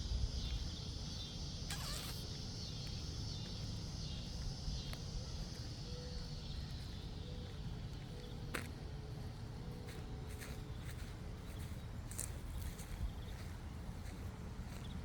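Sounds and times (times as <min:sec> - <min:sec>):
crickets chirping: 0:00.0 - 0:15.0
sharp click: 0:01.7 - 0:02.3.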